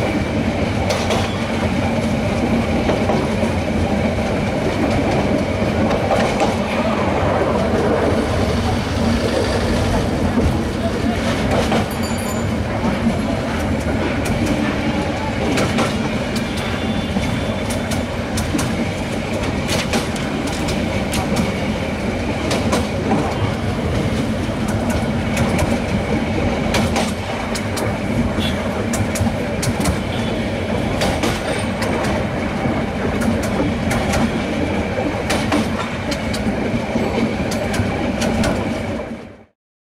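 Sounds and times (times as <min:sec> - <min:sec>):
train running rumble: 0:00.0 - 0:39.4
wheels clicking over rail joints: 0:09.7 - 0:21.7.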